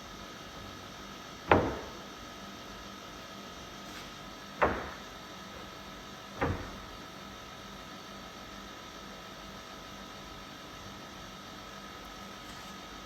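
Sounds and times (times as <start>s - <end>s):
steady background hum: 0.0s - 13.0s
sharp knocks: 1.5s - 2.1s, 4.6s - 5.8s, 6.4s - 7.0s.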